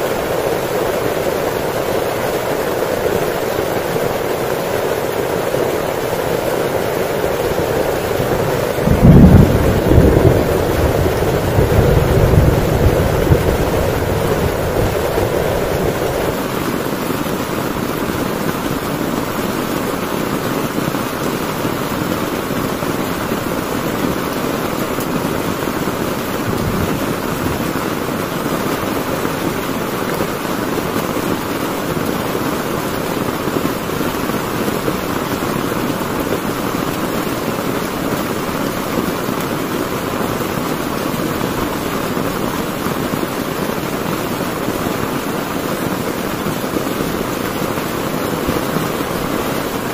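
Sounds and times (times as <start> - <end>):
heavy rain drumming on a tent: 0.0 - 49.9
low thunder rumble: 7.0 - 16.6, 26.1 - 28.2.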